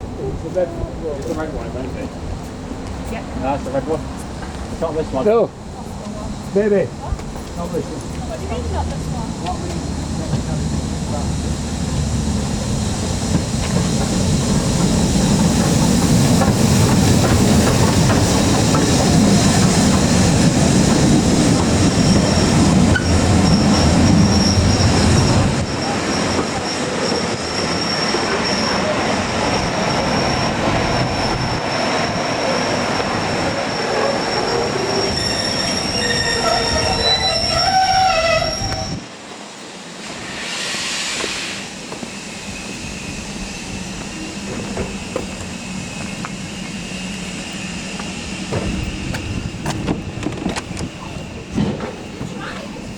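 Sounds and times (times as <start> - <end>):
railway carriage rumbling: 0.0 - 52.9
wheel squeal: 12.8 - 39.1.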